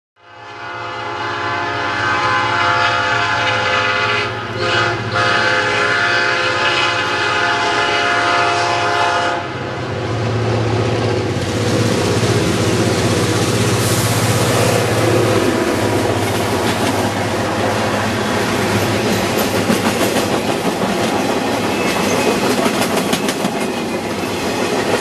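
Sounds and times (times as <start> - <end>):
locomotive horn blasts: 0.2 - 9.6
train passing: 0.2 - 25.0
locomotive engine running: 9.5 - 25.0.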